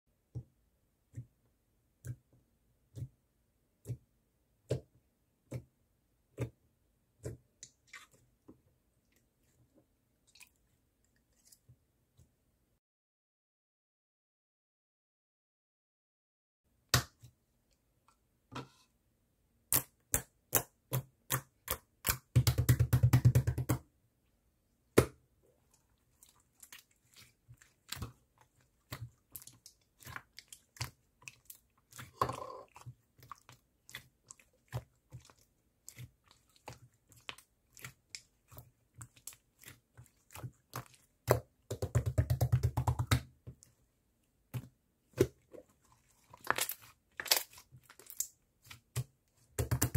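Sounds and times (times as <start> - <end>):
fast crackling of slime: 46.0 - 49.9.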